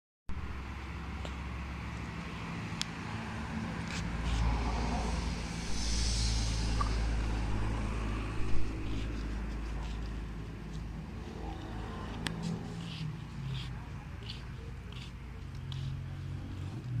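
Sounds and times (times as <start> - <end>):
brief hiss: 4.4 - 8.9.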